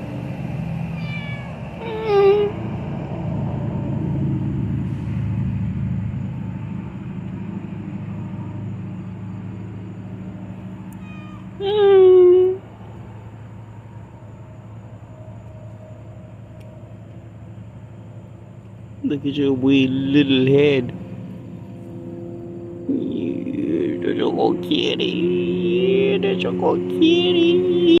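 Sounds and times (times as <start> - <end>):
kitten meowing: 1.0 - 2.6, 10.9 - 12.6.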